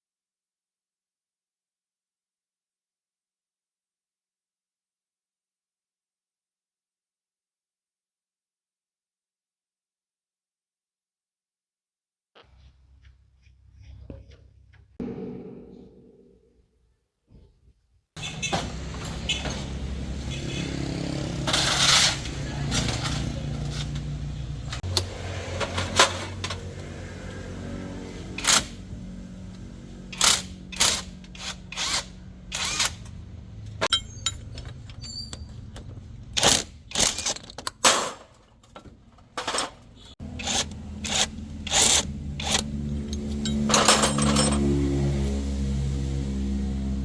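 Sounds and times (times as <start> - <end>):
metal tools clanking: 32.9 - 44.8.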